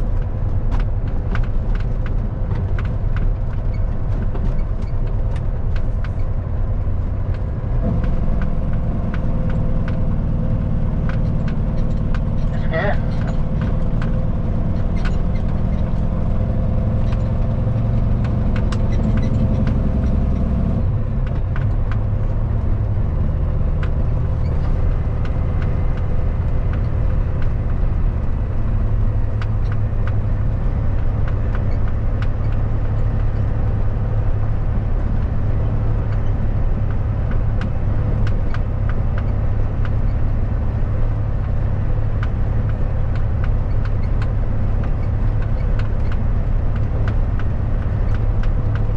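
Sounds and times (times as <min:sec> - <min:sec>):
diesel engine drone: 0:00.0 - 0:48.9
road noise: 0:00.0 - 0:48.9.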